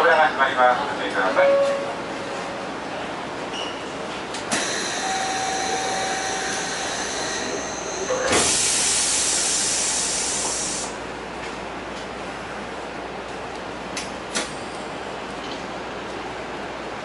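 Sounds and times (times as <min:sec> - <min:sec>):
train running hiss: 0:04.5 - 0:11.1.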